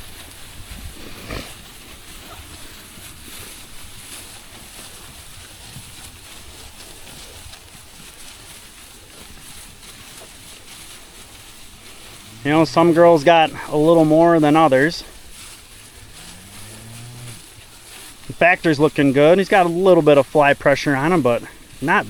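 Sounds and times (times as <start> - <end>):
wind buffeting microphone: 0.0 - 2.6.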